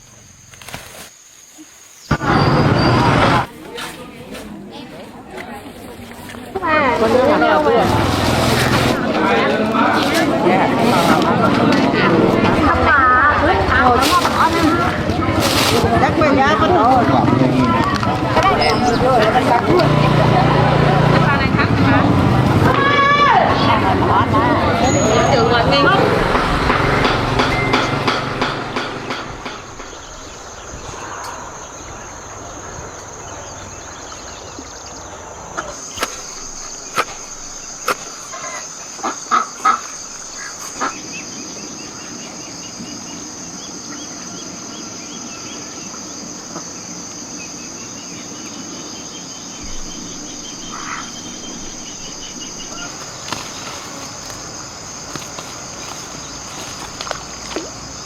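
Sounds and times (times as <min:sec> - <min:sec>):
insects trilling: 0:00.0 - 0:03.2, 0:06.5 - 0:58.0
sharp knocks: 0:26.2 - 0:30.5
faint rapid chirping: 0:29.1 - 0:58.0.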